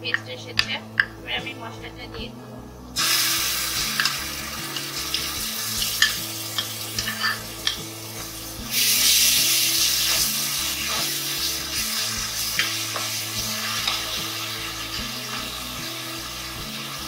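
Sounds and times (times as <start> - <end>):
paste sizzling in hot oil: 3.0 - 17.0
spatula stirring paste: 3.9 - 16.7.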